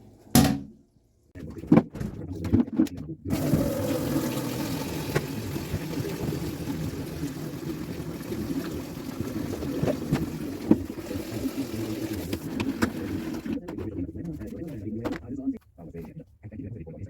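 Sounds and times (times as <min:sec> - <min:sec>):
water running from tap: 0:03.3 - 0:13.6.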